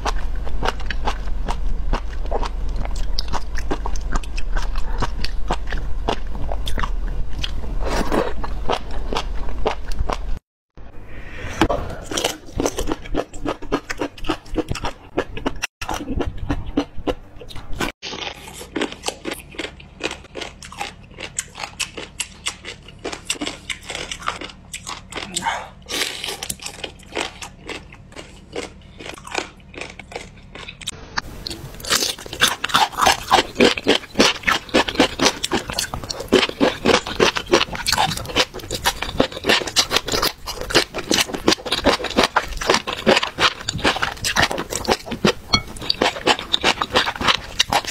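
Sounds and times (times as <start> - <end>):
crunchy chewing: 0.0 - 10.4, 12.0 - 47.9.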